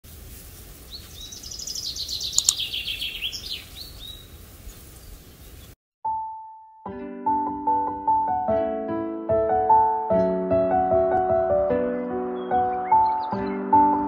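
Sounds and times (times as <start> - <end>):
bird chirping: 0.9 - 5.8, 11.9 - 14.0.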